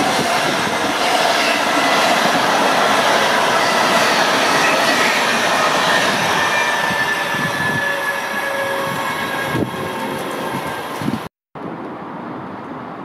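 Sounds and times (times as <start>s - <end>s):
passenger train passing: 0.0s - 11.3s
high ringing from rails: 1.0s - 11.2s.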